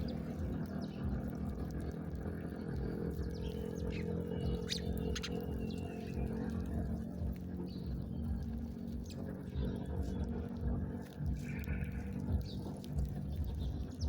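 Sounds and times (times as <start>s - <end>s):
steady low hum: 0.0s - 14.0s
high bird chirps: 3.3s - 6.5s.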